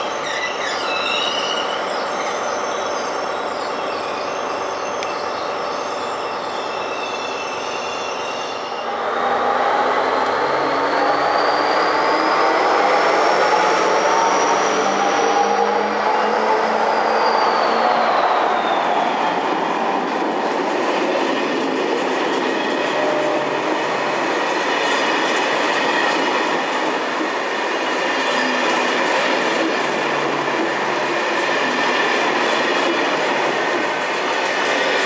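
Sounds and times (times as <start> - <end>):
train wheels rumbling on rails: 9.0 - 35.0.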